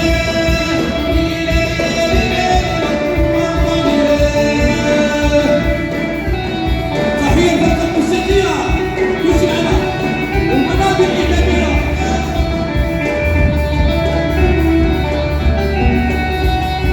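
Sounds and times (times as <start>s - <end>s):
person singing: 0.0s - 13.3s
amplified live band: 0.0s - 16.9s
steady drum beat: 0.0s - 16.9s.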